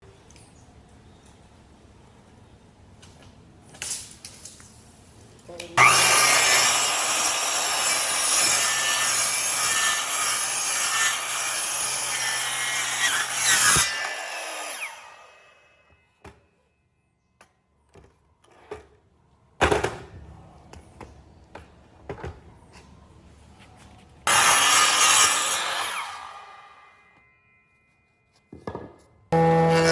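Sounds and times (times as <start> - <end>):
power saw cutting wood: 5.8 - 15.8, 24.3 - 27.0, 29.4 - 29.9.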